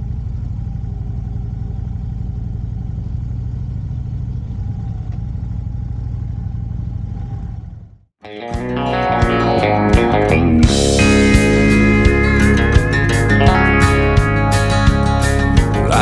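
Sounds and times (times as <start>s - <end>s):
motorcycle engine rumbling: 0.0s - 16.0s
guitar music: 8.2s - 16.0s.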